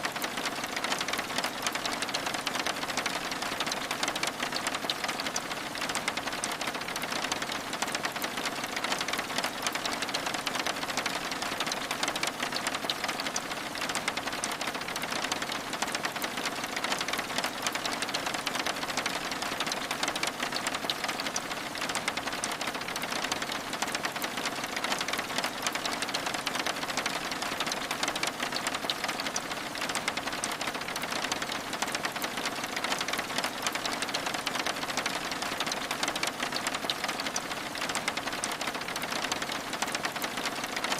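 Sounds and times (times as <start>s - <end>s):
rain pattering on window glass: 0.0s - 40.9s.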